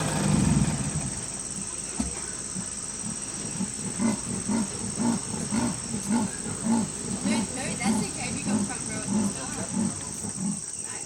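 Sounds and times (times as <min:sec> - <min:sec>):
leopard rasping sawing call: 0:02.4 - 0:11.0.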